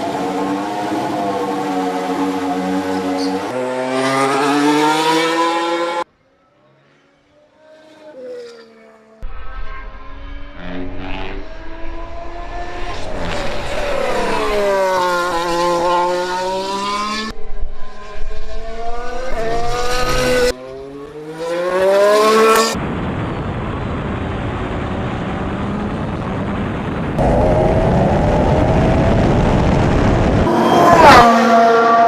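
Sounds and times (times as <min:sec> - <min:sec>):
racing car engine: 0:00.0 - 0:22.8, 0:27.2 - 0:32.0
steady rushing noise: 0:22.7 - 0:32.0.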